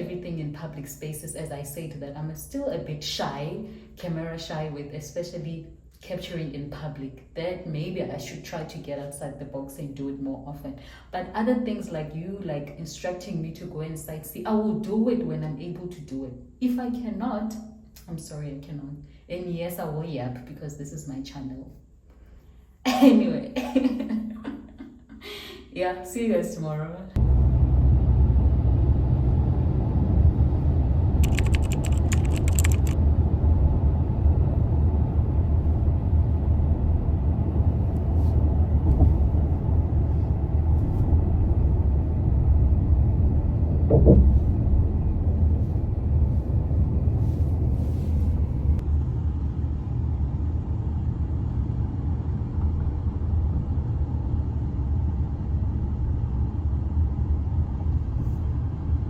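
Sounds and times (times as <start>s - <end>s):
car interior rumble: 27.2s - 48.8s
high clicking rattle: 31.2s - 33.0s.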